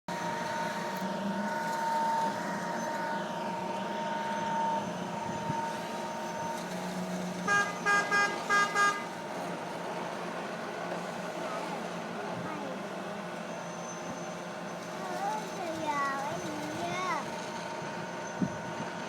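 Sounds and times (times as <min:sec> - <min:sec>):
vehicle horn beeps: 0:00.1 - 0:03.2, 0:07.4 - 0:09.2
road and engine noise: 0:00.1 - 0:19.0.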